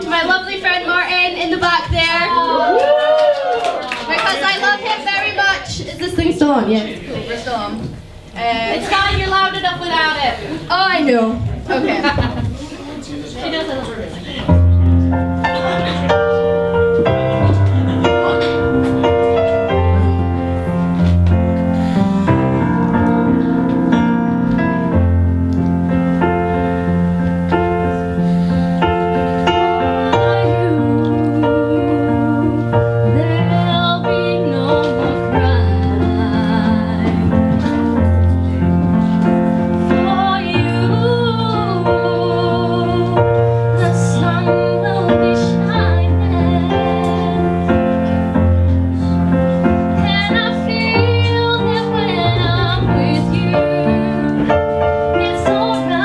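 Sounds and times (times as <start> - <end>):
piano accompaniment: 11.2 - 56.0
woman singing a slow ballad: 29.6 - 38.6, 39.8 - 48.1, 50.0 - 56.0.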